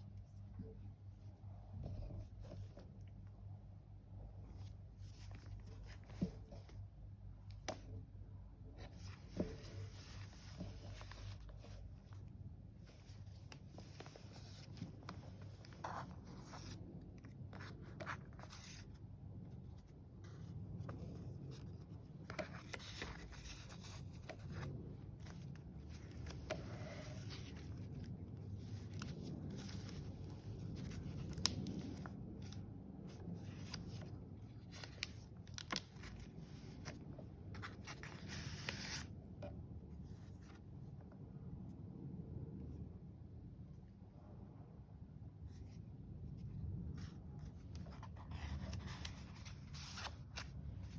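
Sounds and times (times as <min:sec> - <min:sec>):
faint low hum: 0:00.0 - 0:50.9
paper pages rustling and crinkling: 0:04.4 - 0:08.1, 0:08.8 - 0:39.2, 0:46.4 - 0:50.9.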